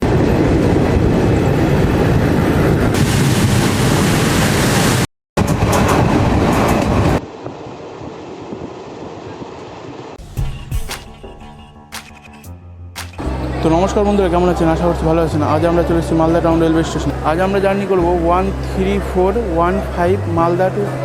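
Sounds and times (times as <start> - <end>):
train rumbling and clattering: 0.0 - 3.7, 5.4 - 12.4.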